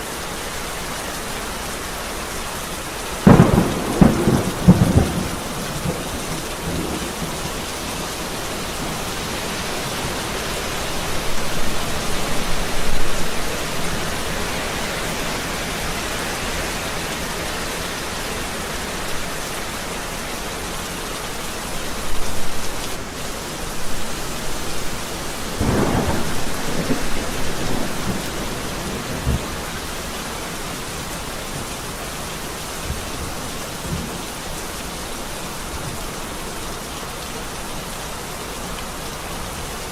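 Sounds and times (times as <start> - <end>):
steady rain: 0.0 - 39.9
thunder rumbling: 3.2 - 15.0, 23.9 - 30.1.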